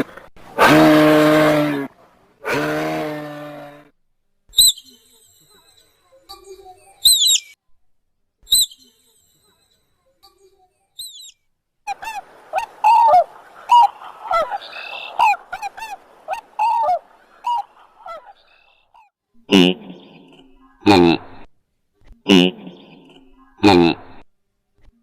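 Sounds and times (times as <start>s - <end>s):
rapid lower bird calls: 4.5s - 5.1s, 7.0s - 7.6s, 11.0s - 19.0s
high falling bird calls: 4.5s - 5.7s, 7.0s - 7.6s, 11.0s - 19.0s.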